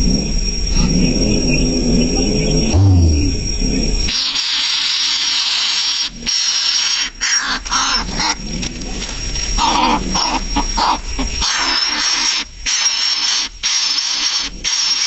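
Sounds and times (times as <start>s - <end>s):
nestling bird raspy hissing calls: 4.1s - 8.5s, 9.6s - 15.0s.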